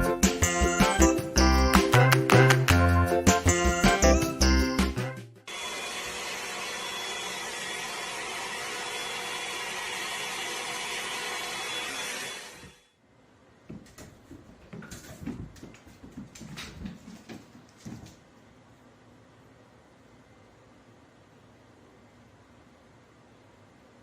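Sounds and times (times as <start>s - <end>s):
music: 0.0s - 5.5s
whirring machine: 5.5s - 13.0s.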